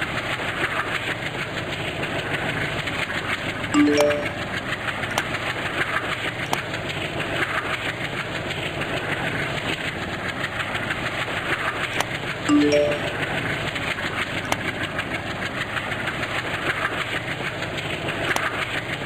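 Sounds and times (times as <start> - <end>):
three-note rising chime: 3.8 - 4.5, 12.5 - 13.3.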